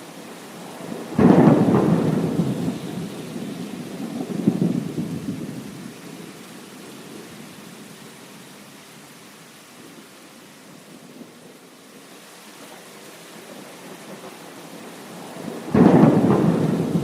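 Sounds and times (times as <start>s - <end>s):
steady rain: 0.0s - 17.0s
thunder crack and rumble: 0.8s - 5.9s, 15.2s - 17.0s.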